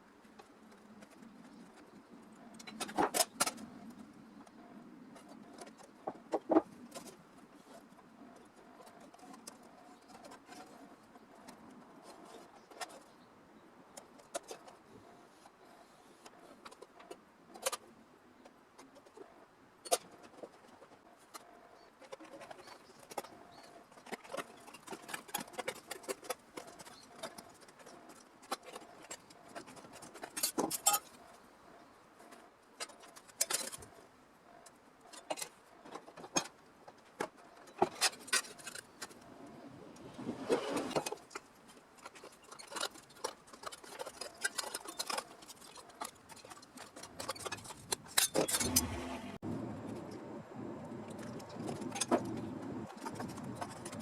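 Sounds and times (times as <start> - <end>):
hand tools and metal clinking: 19.8 - 31.4, 32.2 - 34.0, 40.4 - 49.4
scraping rustle: 37.2 - 50.1.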